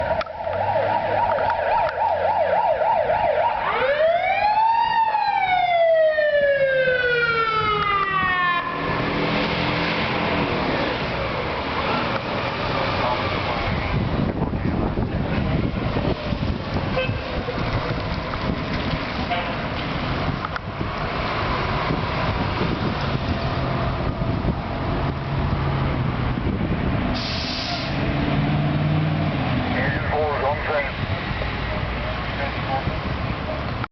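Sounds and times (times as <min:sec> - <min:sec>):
electronic siren: 0:00.0 - 0:09.0
fire engine engine running: 0:00.0 - 0:33.9.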